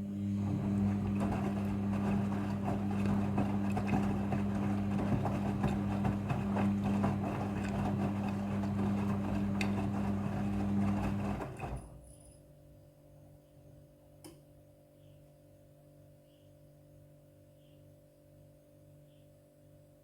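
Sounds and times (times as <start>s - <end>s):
washing machine motor humming: 0.0s - 12.0s
wet load tumbling and sloshing: 0.5s - 11.8s.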